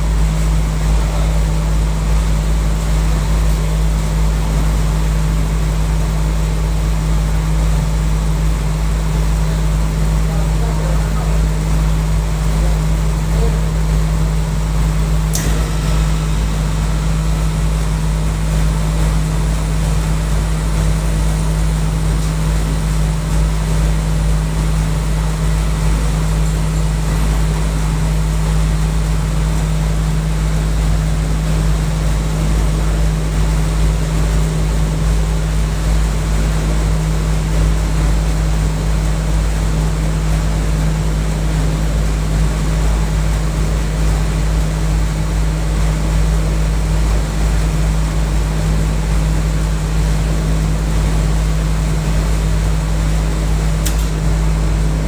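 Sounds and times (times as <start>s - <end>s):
air conditioning unit humming: 0.0s - 55.0s
sharp click: 15.3s - 17.8s, 53.8s - 54.4s.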